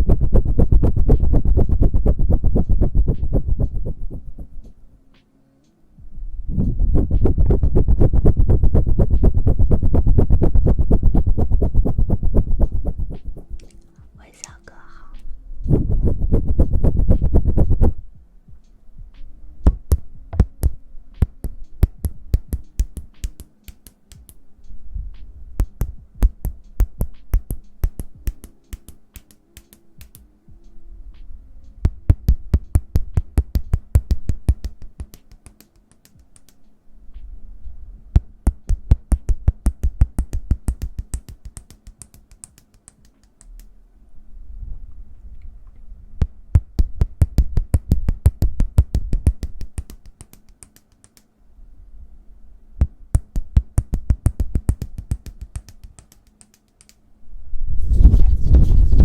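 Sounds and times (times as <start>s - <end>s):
finger clicks and taps: 19.2s - 24.4s, 25.2s - 30.3s, 31.2s - 36.7s, 38.2s - 43.7s, 46.2s - 51.3s, 52.8s - 57.0s.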